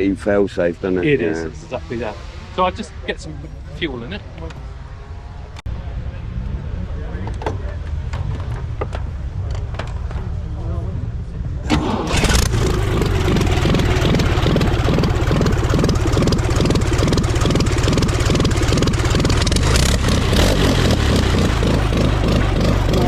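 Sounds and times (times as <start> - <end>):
car engine running: 11.7 - 23.0.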